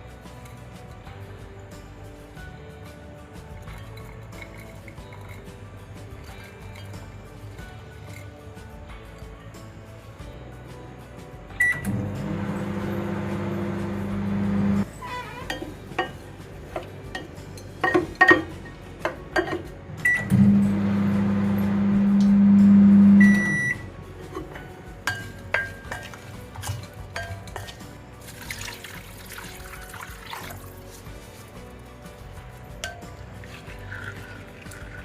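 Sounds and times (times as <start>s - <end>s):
microwave beeping: 11.6s - 14.8s, 20.0s - 23.9s
microwave humming: 11.6s - 14.8s, 20.0s - 23.9s.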